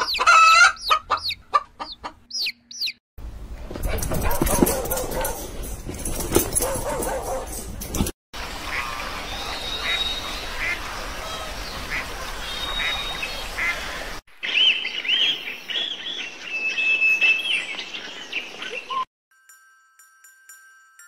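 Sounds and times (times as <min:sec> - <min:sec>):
birds singing whistled notes: 0:02.3 - 0:03.0, 0:09.3 - 0:10.8, 0:14.4 - 0:19.1
waterfowl calls: 0:08.6 - 0:14.1.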